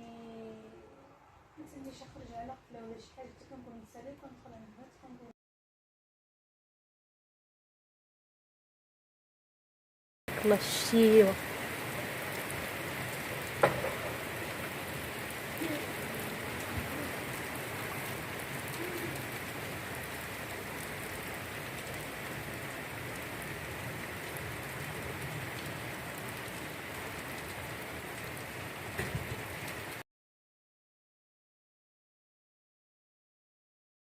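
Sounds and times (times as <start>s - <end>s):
light rain falling: 10.3s - 30.0s
faint knocks: 13.6s - 14.3s.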